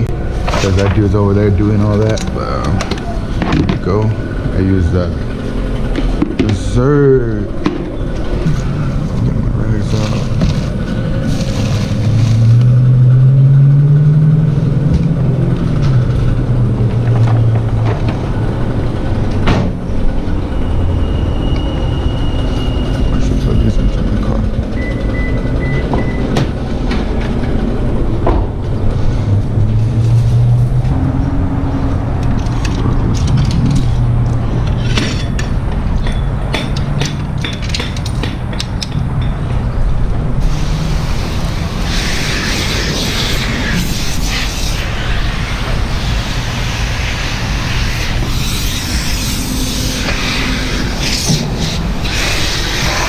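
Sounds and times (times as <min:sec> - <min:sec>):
clinks and knocks of objects: 0:32.2 - 0:39.7.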